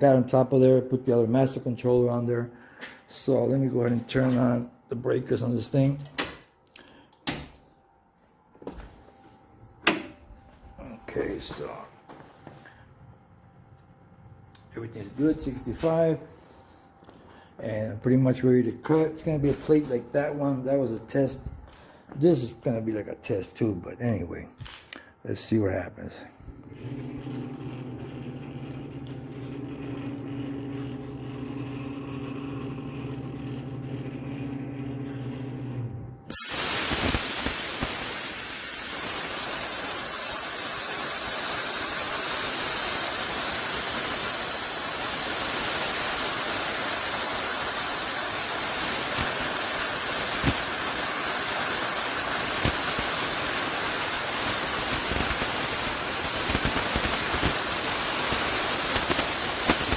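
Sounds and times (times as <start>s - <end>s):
plasma arc hissing: 36.3s - 59.9s.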